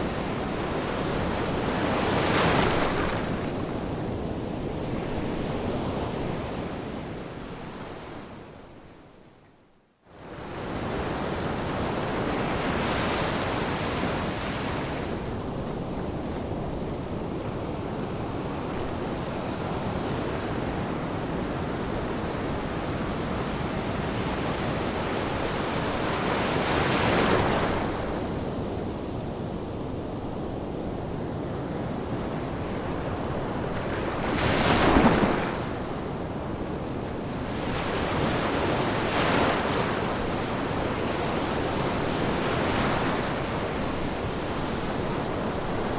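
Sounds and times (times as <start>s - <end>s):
ocean waves breaking: 32.9s - 36.2s.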